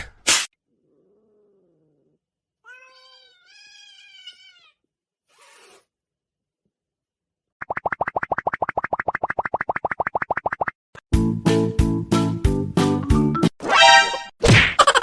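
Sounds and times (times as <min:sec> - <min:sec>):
cat meowing: 0:00.7 - 0:04.9.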